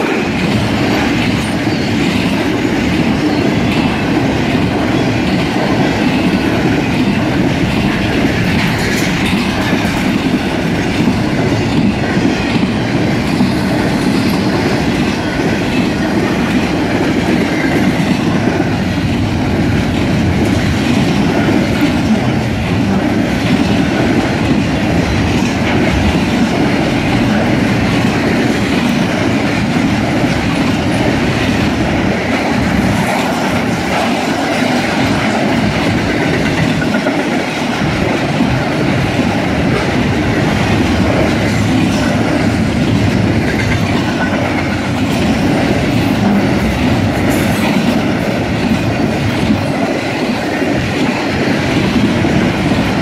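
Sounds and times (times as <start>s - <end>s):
freight train wheels on rail: 0.0s - 53.0s.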